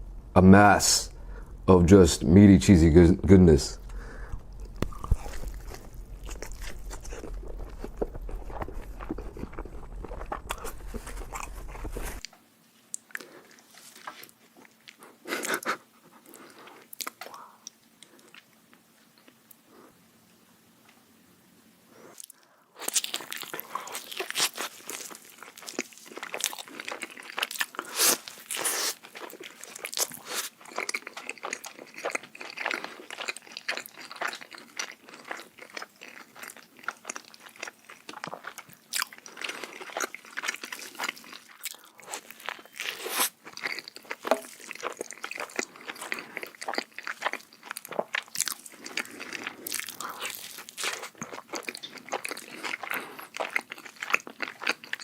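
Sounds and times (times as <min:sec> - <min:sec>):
crunching bites: 0:03.8 - 0:12.3
wet chewing: 0:03.8 - 0:12.3, 0:22.2 - 0:55.0.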